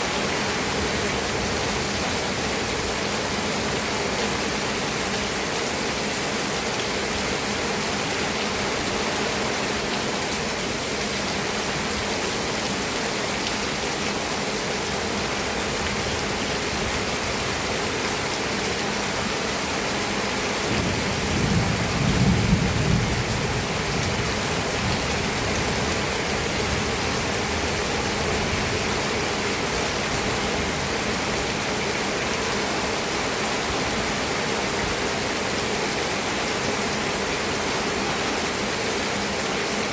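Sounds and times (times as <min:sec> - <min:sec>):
heavy rain: 0:00.0 - 0:39.9
low rumble of thunder: 0:20.7 - 0:25.9.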